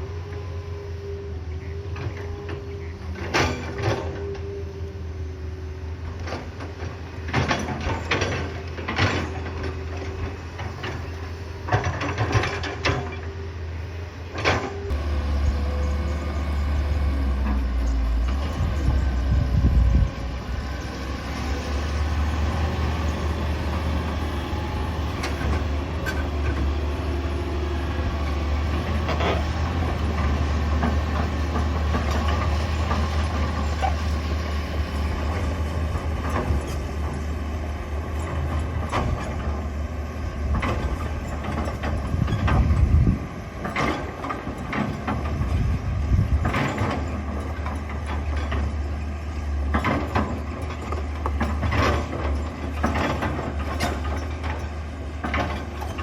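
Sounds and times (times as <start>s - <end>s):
excavator diesel engine: 0.0s - 56.0s
knocks and clanks: 49.6s - 56.0s.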